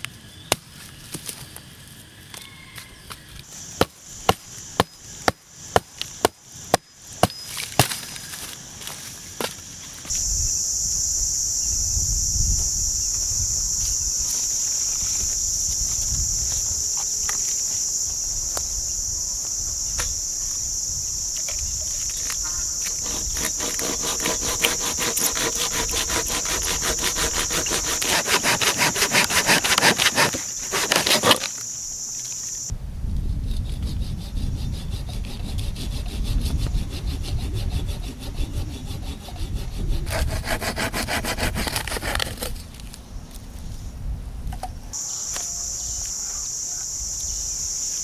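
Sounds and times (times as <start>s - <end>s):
high-pitched insect drone: 10.1s - 32.7s
hand saw cutting wood: 22.8s - 31.6s, 33.6s - 42.6s.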